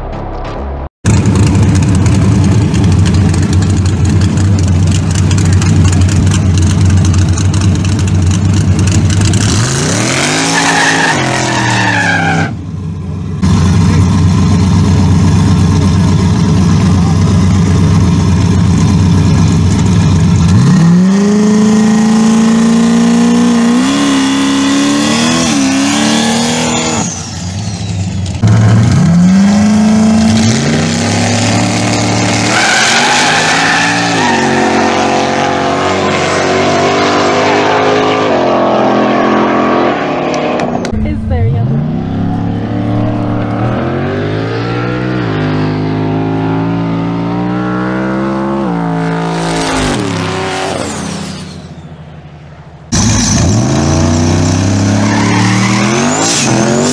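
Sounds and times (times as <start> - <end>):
engines idling and revving: 0.0 - 56.9.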